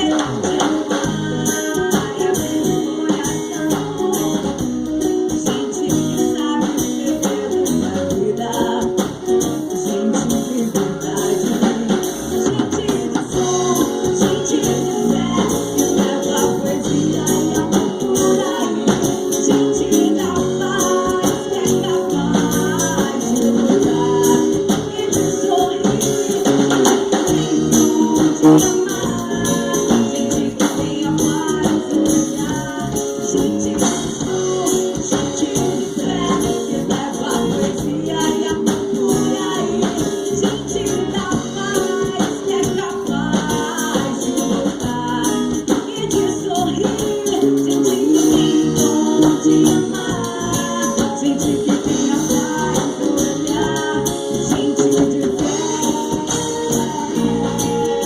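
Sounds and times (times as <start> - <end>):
live band playing reggae-pop: 0.0 - 58.0
steady percussive beat: 25.9 - 30.2.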